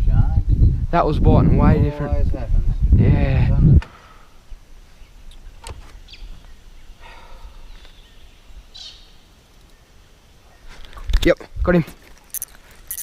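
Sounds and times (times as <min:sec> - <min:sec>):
wind rumble: 0:00.0 - 0:04.7
faint bird calls: 0:03.9 - 0:11.0.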